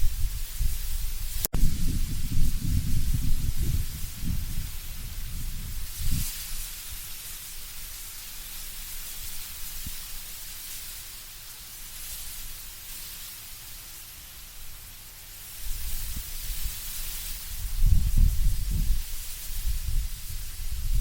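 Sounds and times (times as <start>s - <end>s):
low rumble of wind gust: 0.0s - 7.2s, 15.6s - 21.0s
wind rustling leaves: 0.0s - 21.0s.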